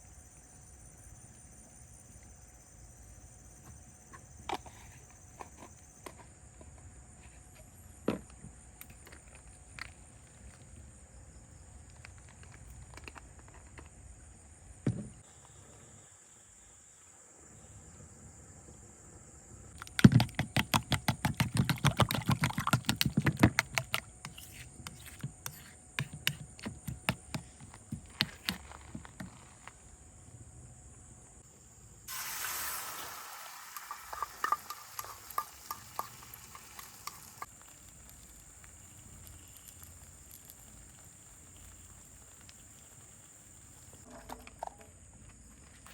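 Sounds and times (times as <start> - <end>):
food sizzling in hot oil: 32.1 - 44.1
light stirring clicks: 33.8 - 38.4.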